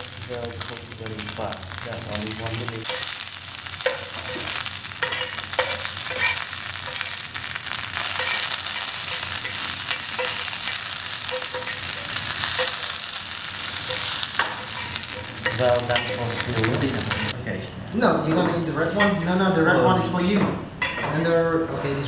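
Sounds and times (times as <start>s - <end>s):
food sizzling in hot oil: 0.0s - 17.4s.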